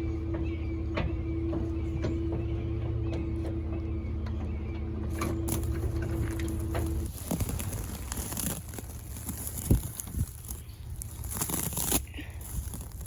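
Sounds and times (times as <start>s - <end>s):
engine running: 0.0s - 13.0s
knocks and rustling: 5.1s - 13.0s.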